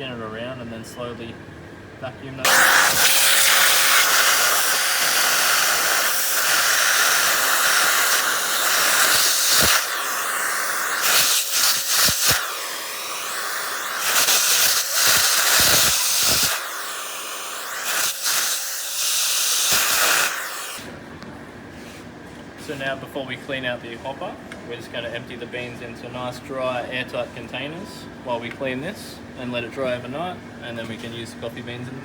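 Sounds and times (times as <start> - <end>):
vacuum cleaner running: 2.5 - 21.0.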